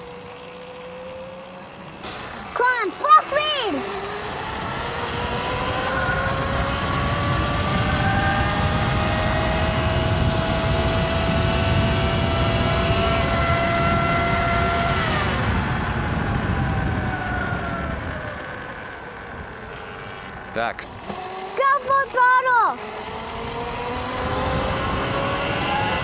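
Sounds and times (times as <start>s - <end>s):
tyres on dirt: 0.0s - 6.3s
electric motor whining: 0.0s - 26.0s.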